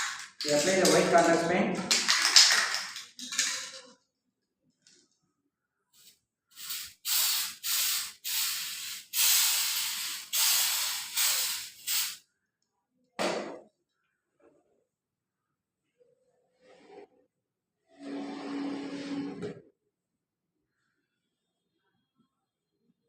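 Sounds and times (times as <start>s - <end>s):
aerosol can spraying: 6.0s - 12.2s.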